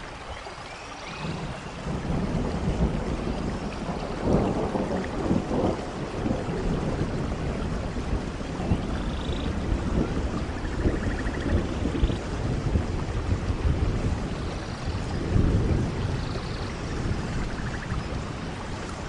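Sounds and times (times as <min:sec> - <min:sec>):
steady rainfall: 0:00.0 - 0:19.0.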